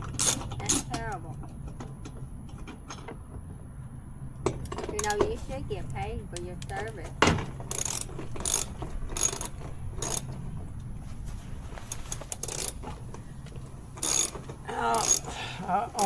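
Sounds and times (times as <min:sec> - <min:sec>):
low steady hum: 0:00.0 - 0:16.0
hand tools clinking on metal: 0:11.7 - 0:16.0.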